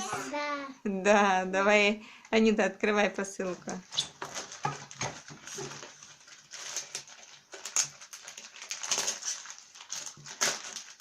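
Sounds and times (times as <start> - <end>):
parcel packaging torn open: 3.9 - 11.0.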